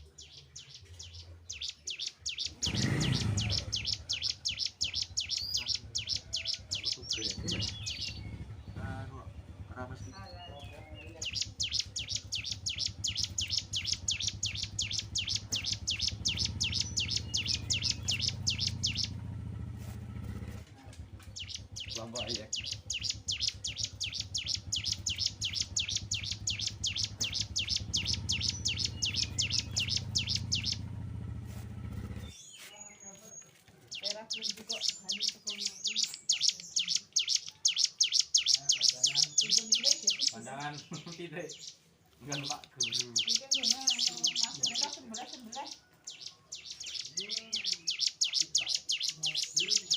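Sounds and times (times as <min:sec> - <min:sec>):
songbird chirping: 0:00.0 - 0:49.9
low rumble: 0:06.7 - 0:32.4.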